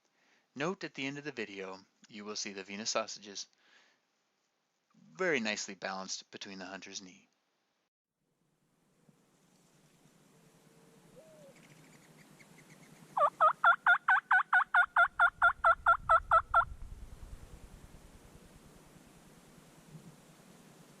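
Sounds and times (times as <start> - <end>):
turkey yelping: 12.8 - 16.7.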